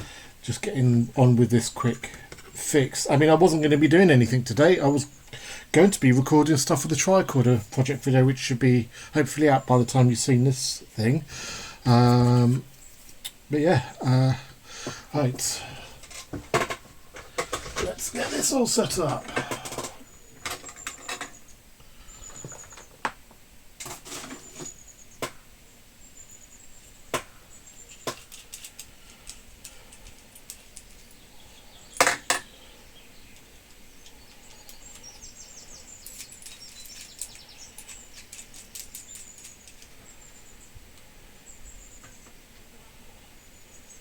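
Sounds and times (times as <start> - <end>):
small tools clattering on workbench: 16.0 - 18.4, 19.0 - 21.4, 32.0 - 32.5.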